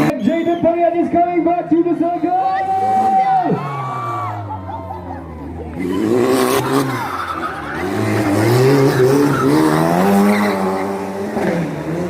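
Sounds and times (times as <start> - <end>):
car engine revving: 2.6 - 12.0.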